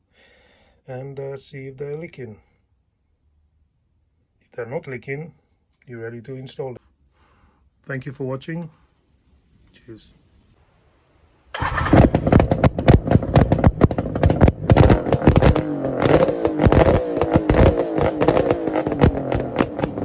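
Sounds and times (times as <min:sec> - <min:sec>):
motorcycle engine starting and revving: 0:11.6 - 0:20.0.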